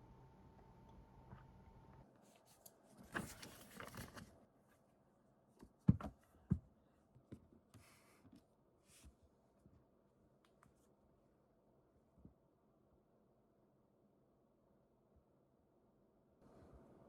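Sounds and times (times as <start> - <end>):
faint steady hum: 0.0 - 5.7.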